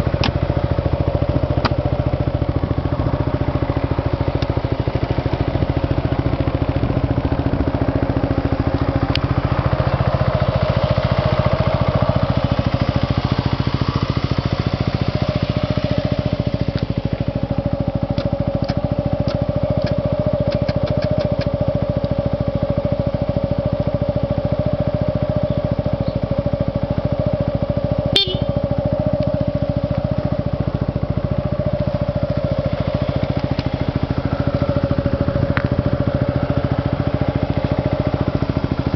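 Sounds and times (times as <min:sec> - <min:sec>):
scooter engine idling: 0:00.0 - 0:38.9
sharp tick: 0:01.6 - 0:01.8, 0:04.3 - 0:04.6, 0:16.7 - 0:16.9, 0:18.1 - 0:22.2, 0:29.1 - 0:30.0.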